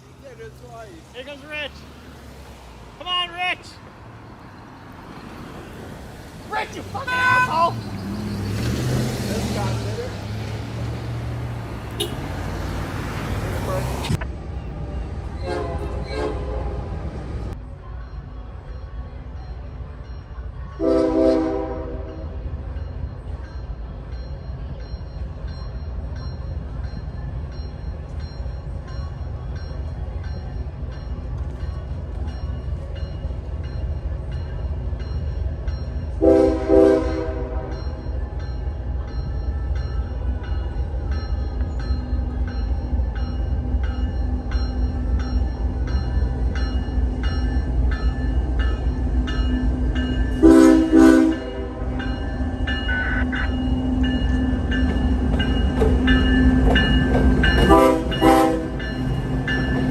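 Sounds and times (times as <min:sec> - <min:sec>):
passing train rumble: 0:00.0 - 0:59.9
locomotive horn blasts: 0:11.9 - 0:12.6, 0:15.4 - 0:17.0, 0:20.8 - 0:22.4, 0:36.2 - 0:37.9, 0:50.4 - 0:52.1, 0:57.6 - 0:58.9.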